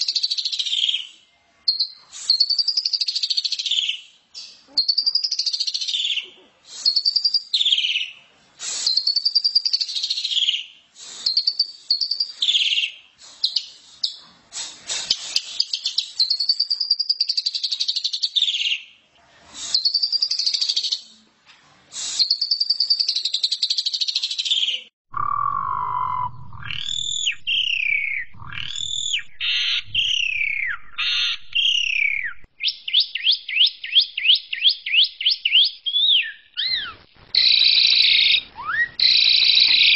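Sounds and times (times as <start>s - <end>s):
starling singing whistled phrases: 0.0s - 19.0s, 19.6s - 21.1s, 22.0s - 39.9s.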